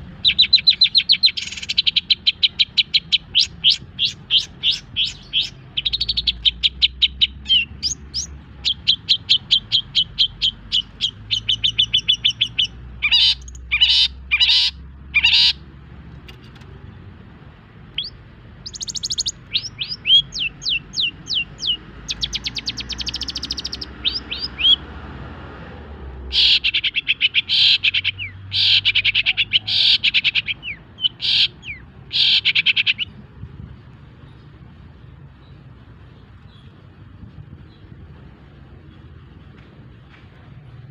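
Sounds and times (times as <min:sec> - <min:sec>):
bird rasping calls: 0:00.2 - 0:15.6, 0:18.0 - 0:24.9, 0:26.3 - 0:33.2
bird singing high chirps: 0:00.2 - 0:15.6, 0:18.0 - 0:24.8, 0:26.3 - 0:33.2.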